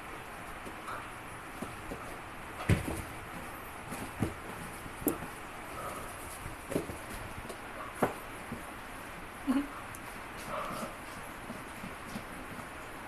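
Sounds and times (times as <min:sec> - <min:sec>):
soft thumps and knocks: 0:01.6 - 0:05.4.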